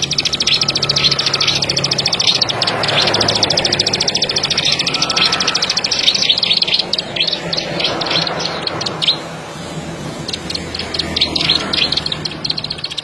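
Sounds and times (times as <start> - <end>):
bird singing buzzy trill: 0.0 - 13.0.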